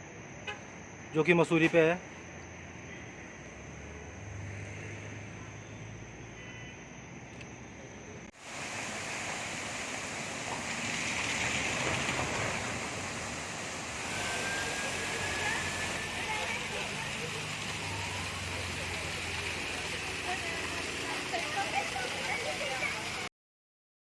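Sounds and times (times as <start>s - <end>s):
steady rushing noise: 8.4s - 23.3s.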